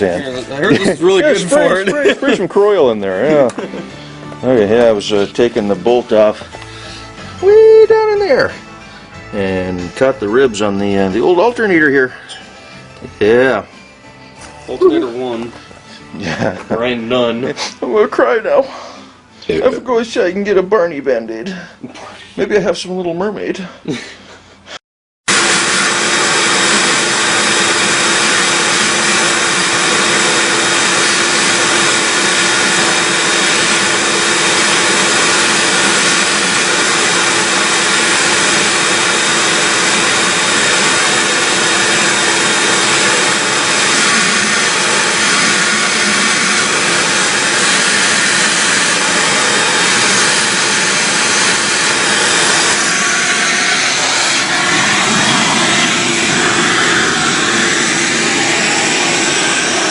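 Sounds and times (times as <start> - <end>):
shop tool motor rushing: 25.3 - 59.9.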